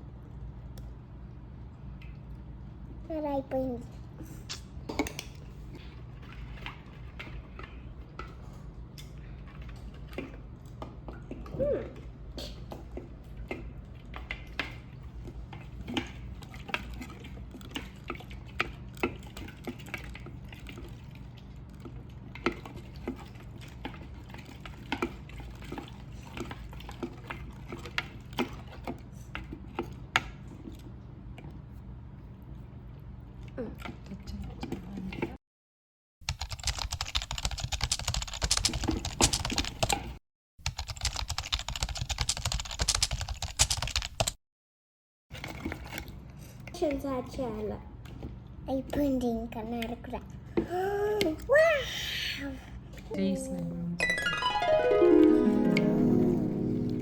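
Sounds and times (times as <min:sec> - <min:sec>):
slime being stirred and squished: 0:12.4 - 0:35.2, 0:45.4 - 0:48.9.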